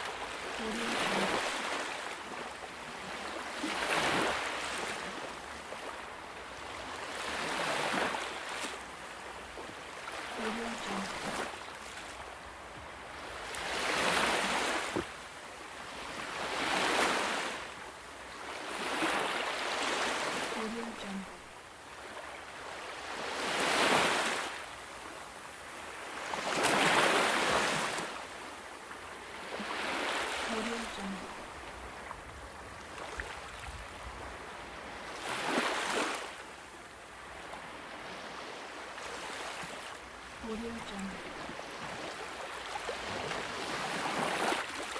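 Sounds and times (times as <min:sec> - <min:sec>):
rushing water: 0:00.0 - 0:44.9
waves washing in: 0:00.0 - 0:44.9.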